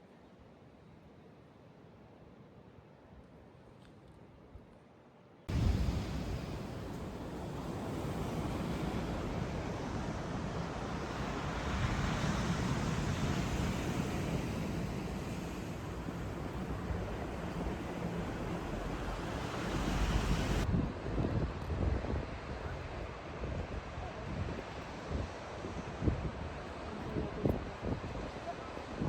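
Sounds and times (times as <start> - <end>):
ocean surf breaking: 5.5 - 20.7
wind buffeting microphone: 5.5 - 22.7.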